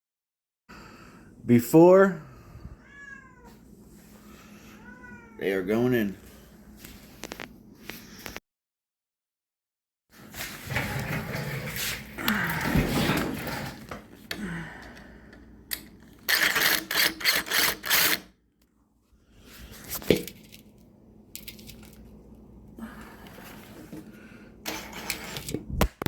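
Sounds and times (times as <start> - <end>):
tools clicking and rattling: 15.7 - 18.2, 21.3 - 22.1.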